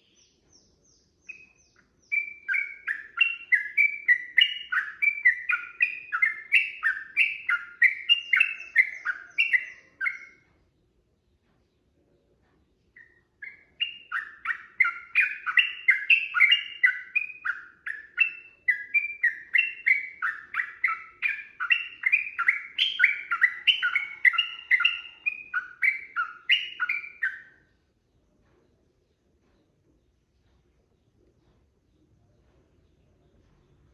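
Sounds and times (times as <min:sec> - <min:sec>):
bird singing warbling notes: 0:00.9 - 0:10.4, 0:13.0 - 0:27.7.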